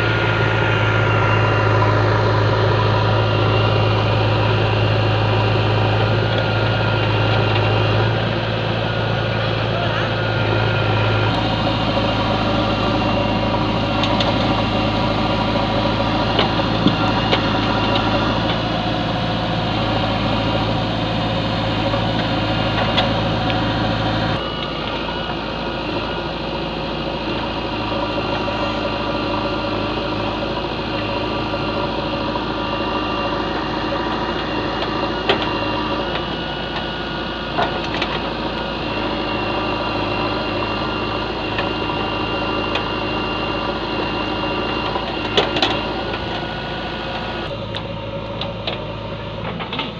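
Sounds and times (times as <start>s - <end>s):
diesel machinery engine running: 0.0s - 49.9s.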